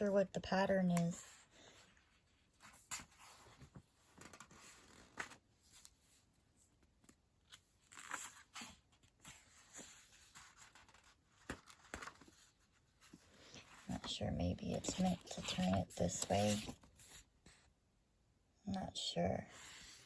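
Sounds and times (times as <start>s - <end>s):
paper pages rustling and turning: 1.2s - 17.6s.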